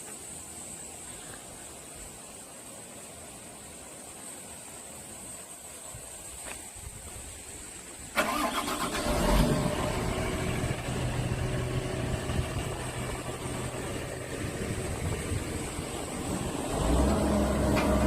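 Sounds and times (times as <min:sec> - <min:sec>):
diesel engine cranking and starting: 0:08.2 - 0:18.0
diesel engine idling: 0:08.2 - 0:18.0.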